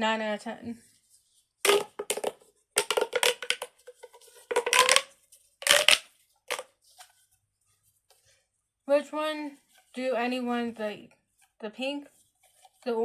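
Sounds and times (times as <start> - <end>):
plastic pop tube zipping: 1.6 - 6.7.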